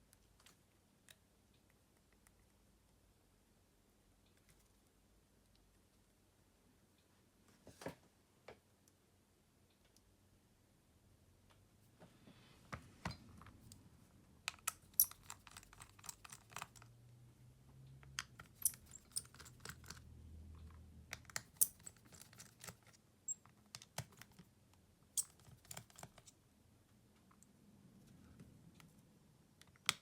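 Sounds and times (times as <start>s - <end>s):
tools and parts clicking: 14.5s - 17.0s, 18.0s - 24.5s, 25.2s - 26.4s.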